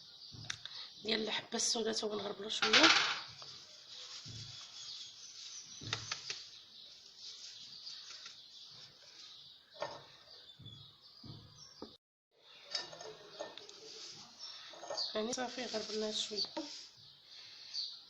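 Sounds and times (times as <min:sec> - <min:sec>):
herbs shaken through a sieve: 0:03.2 - 0:09.3, 0:15.1 - 0:16.9.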